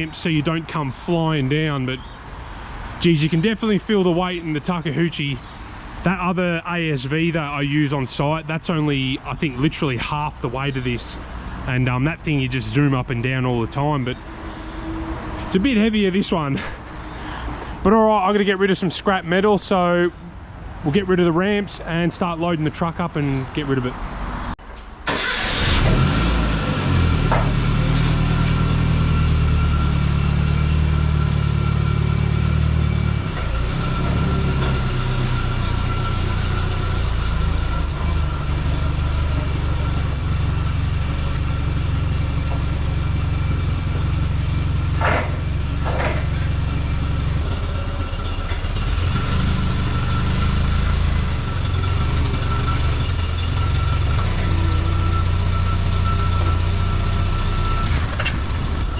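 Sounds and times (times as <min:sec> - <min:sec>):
diesel engine running: 0:00.0 - 0:20.1, 0:25.1 - 0:58.9
sharp squeaks: 0:33.2 - 0:58.9.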